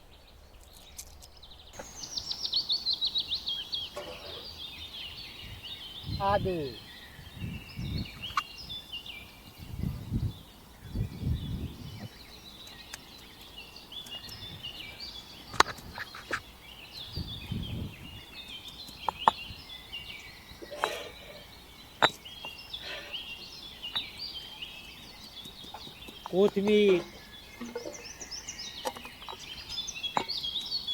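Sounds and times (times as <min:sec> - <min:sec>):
small birds chirping: 0:00.0 - 0:30.9
sharp knocks: 0:22.0 - 0:22.2.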